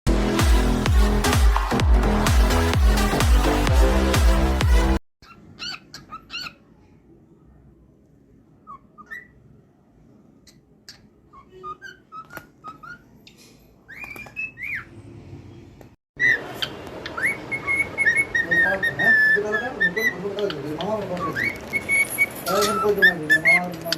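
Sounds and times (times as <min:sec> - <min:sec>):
cockatiel whistling and chirping: 0:05.2 - 0:06.6, 0:08.6 - 0:09.4, 0:10.9 - 0:13.1, 0:13.9 - 0:14.9, 0:16.2 - 0:20.5, 0:21.2 - 0:23.7.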